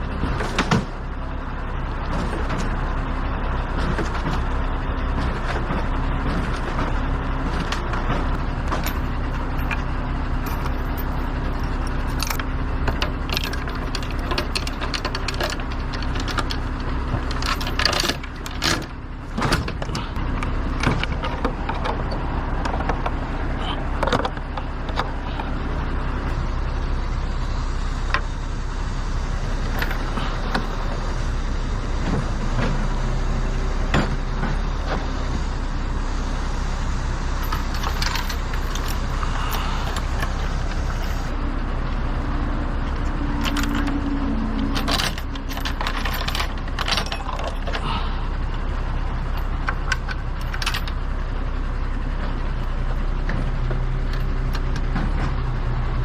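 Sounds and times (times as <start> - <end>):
truck engine running: 0.0 - 56.0
rattles and clinks: 3.8 - 25.6, 29.6 - 31.0, 37.3 - 41.4, 42.9 - 51.3, 53.7 - 55.2.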